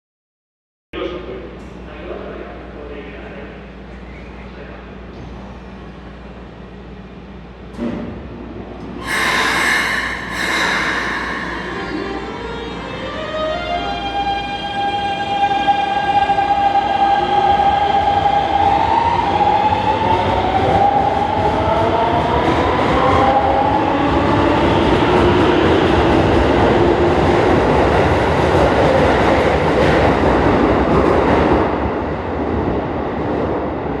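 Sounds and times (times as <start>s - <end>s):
train inverter and motors whining: 9.0s - 20.0s.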